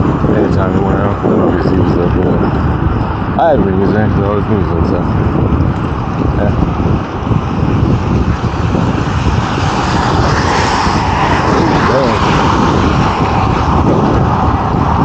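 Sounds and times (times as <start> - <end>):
motor vehicle passing: 0.0 - 15.0
wind buffeting microphone: 0.0 - 15.0
bicycle tyres on wet road: 5.1 - 15.0.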